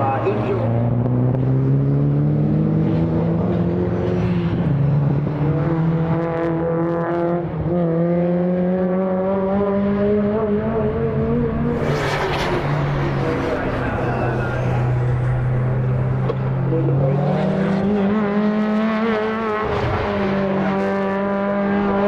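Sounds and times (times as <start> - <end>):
race car engine accelerating: 0.0 - 22.0
loud rush of noise: 11.7 - 17.8.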